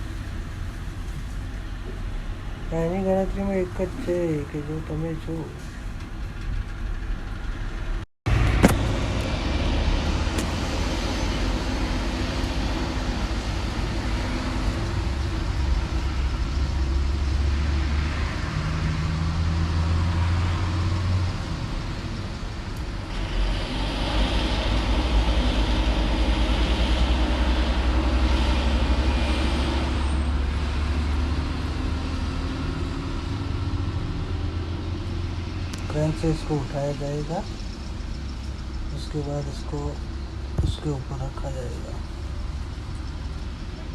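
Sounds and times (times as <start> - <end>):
heavy diesel engine running: 0.0 - 43.9
highway traffic passing: 0.0 - 43.9.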